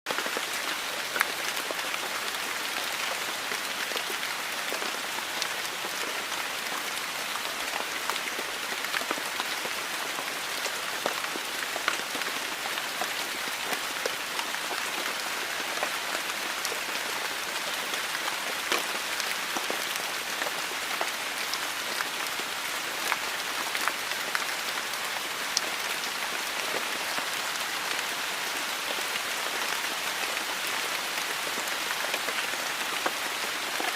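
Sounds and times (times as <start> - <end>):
raindrops splashing on surfaces: 0.1 - 33.9
steady rain hiss: 0.2 - 33.9.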